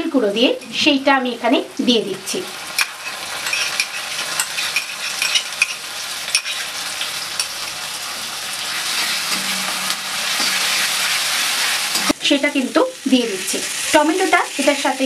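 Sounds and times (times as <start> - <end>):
paste sizzling in hot oil: 1.6 - 15.0
spatula scraping metal pan: 2.8 - 7.9, 8.6 - 12.1.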